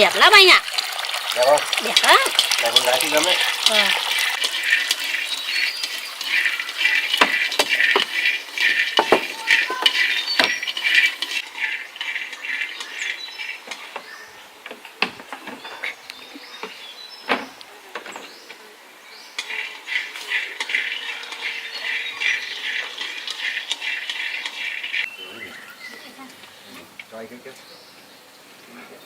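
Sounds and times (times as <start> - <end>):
high-pitched animal chirping: 5.1 - 11.2
sharp knocks and clinks: 5.2 - 11.4.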